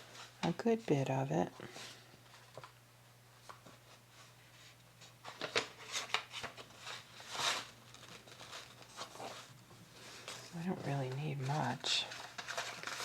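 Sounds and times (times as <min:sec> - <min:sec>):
paper rustling: 0:03.4 - 0:13.0.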